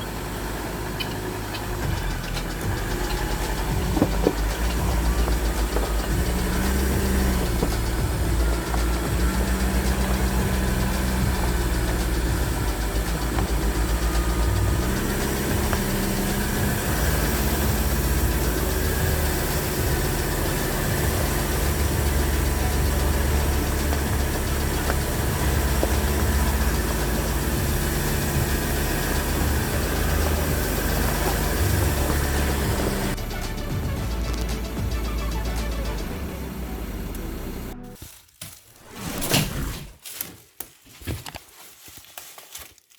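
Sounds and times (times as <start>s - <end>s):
engine humming steadily: 0.0s - 38.0s.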